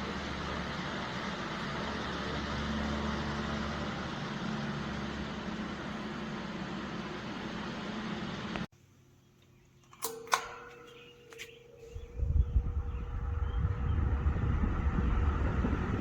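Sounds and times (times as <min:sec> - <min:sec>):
fan motor hum: 0:00.0 - 0:08.7, 0:09.4 - 0:16.0
fan switch clicks: 0:09.4 - 0:13.1
air buffeting microphone: 0:11.8 - 0:16.0.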